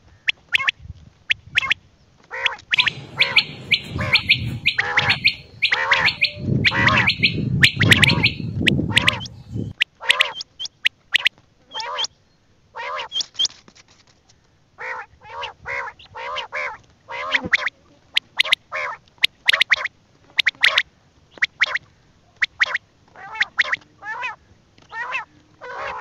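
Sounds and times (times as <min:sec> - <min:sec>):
harsh bird calls: 0:02.7 - 0:10.8
sharp high bird chirps: 0:02.8 - 0:11.3.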